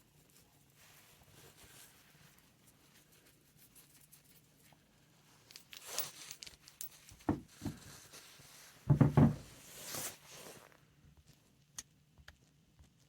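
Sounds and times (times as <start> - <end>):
dull knocks: 8.9 - 9.5.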